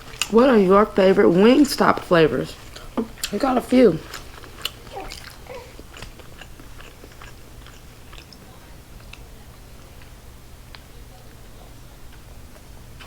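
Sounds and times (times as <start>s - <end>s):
chewing chicken wings: 0.0s - 13.0s
crunch: 4.0s - 8.4s
wet mouth clicks: 4.2s - 8.4s.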